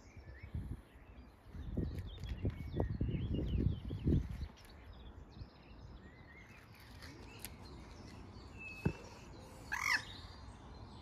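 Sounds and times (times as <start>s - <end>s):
small bird chirps: 0.0s - 11.0s
loud bird call: 8.7s - 10.4s.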